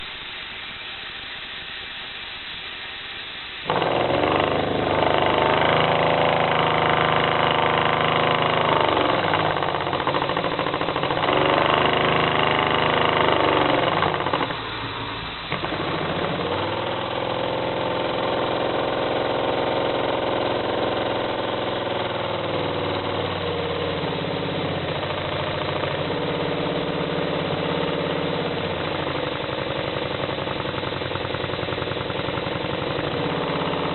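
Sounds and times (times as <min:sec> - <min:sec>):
faint air hiss: 0:00.0 - 0:33.9
model steam engine running: 0:03.6 - 0:33.9.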